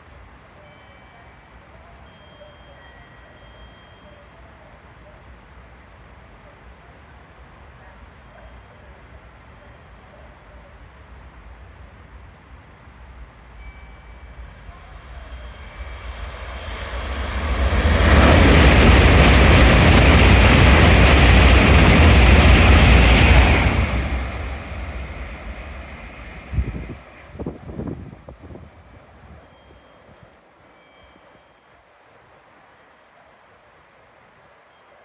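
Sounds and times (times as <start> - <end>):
high-speed train passing: 11.2 - 29.4.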